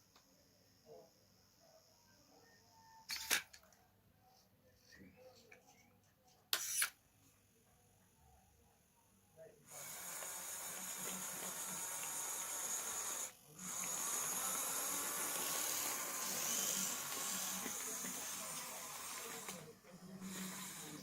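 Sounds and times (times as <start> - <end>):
small electric motors whirring: 9.7 - 21.0.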